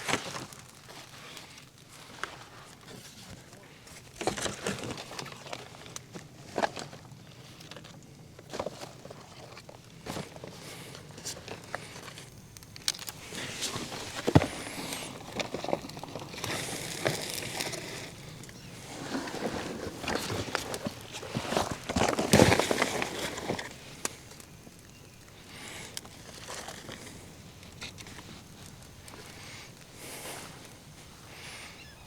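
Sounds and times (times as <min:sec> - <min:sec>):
wet brush rustling and snapping: 0:00.0 - 0:31.7.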